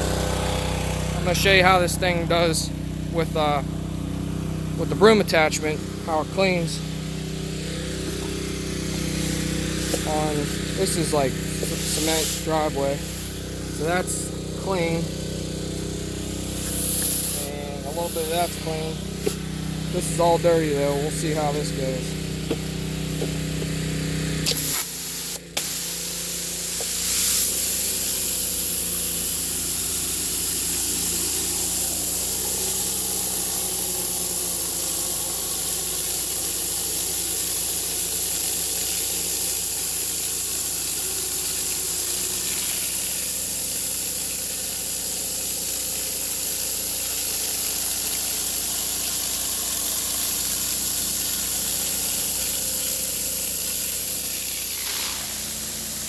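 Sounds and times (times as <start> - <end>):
high-pressure water spray hissing: 0.0 - 56.0
pressure washer engine running: 0.0 - 56.0.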